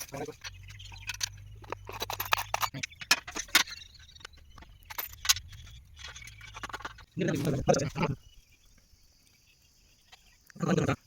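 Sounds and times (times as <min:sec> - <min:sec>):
metal parts clinking and knocking: 0:00.0 - 0:07.1.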